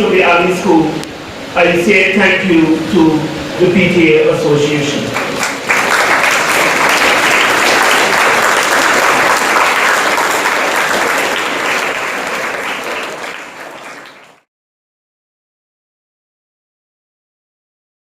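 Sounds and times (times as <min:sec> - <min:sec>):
crowd applauding: 0:05.1 - 0:14.5.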